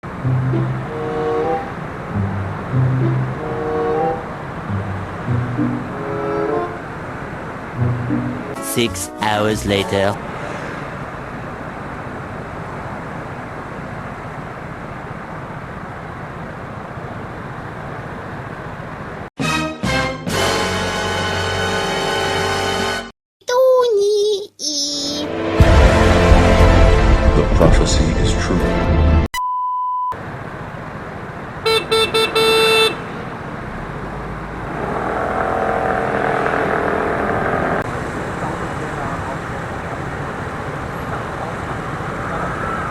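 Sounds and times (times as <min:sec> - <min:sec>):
scooter road noise: 0:00.0 - 0:08.9, 0:09.7 - 0:19.3, 0:30.2 - 0:42.9
vehicle horn honking: 0:31.6 - 0:33.2.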